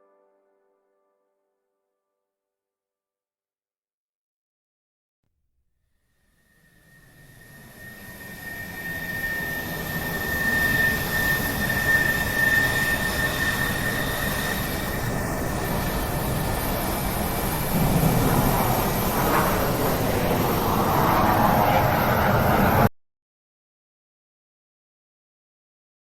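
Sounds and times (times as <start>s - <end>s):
jet engines whining: 6.8s - 22.9s.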